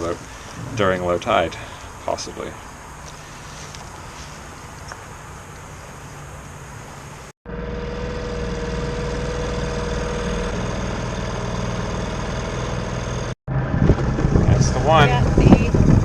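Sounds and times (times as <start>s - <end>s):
steady whine: 5.5s - 16.0s
boat engine running: 7.5s - 16.0s.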